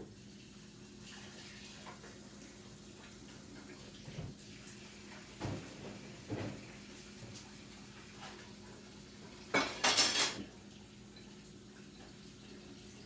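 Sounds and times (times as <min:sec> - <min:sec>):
utensils clinking: 0:09.6 - 0:10.4.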